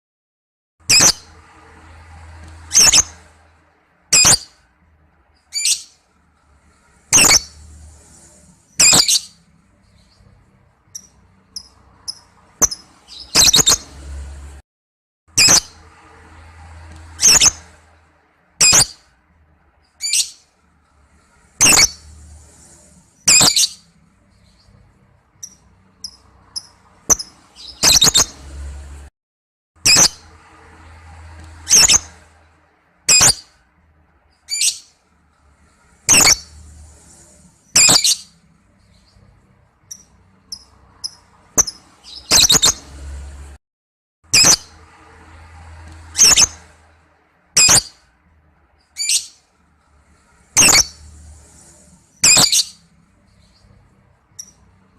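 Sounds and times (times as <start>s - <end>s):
lovebird shrill calls: 0.9s - 1.3s, 2.7s - 3.1s, 4.1s - 4.5s, 7.1s - 7.6s, 8.8s - 9.4s, 11.0s - 13.9s, 15.4s - 15.8s, 17.2s - 17.6s, 18.6s - 19.0s, 21.6s - 22.0s, 23.2s - 23.8s, 25.4s - 28.4s, 31.7s - 32.1s, 36.1s - 36.5s, 37.7s - 38.3s, 46.2s - 46.6s, 50.6s - 51.0s, 52.2s - 52.8s
soft high bird chirps: 2.5s - 3.3s, 4.1s - 4.6s, 5.3s - 6.1s, 7.1s - 14.0s, 16.8s - 17.9s, 18.6s - 19.1s, 19.8s - 20.6s, 21.6s - 28.5s, 31.4s - 32.3s, 33.1s - 33.6s, 34.3s - 35.0s, 36.1s - 43.0s, 46.0s - 46.7s, 47.6s - 48.0s, 48.8s - 49.5s, 50.6s - 54.7s
lovebird shrill screeches: 7.1s - 7.6s, 8.8s - 9.4s, 21.6s - 22.0s, 23.2s - 23.8s, 36.1s - 36.5s, 37.7s - 38.3s, 50.6s - 51.0s, 52.2s - 52.8s
quiet bird chirps: 8.7s - 13.8s, 23.2s - 28.2s.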